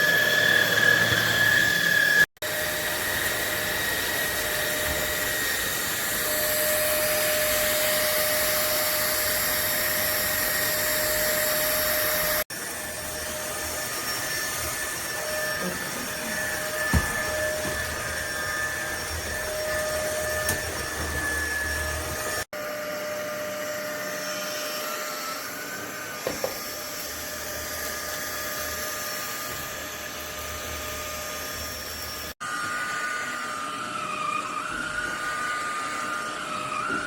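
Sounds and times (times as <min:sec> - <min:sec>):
vacuum cleaner motor whine: 0:00.0 - 0:37.0.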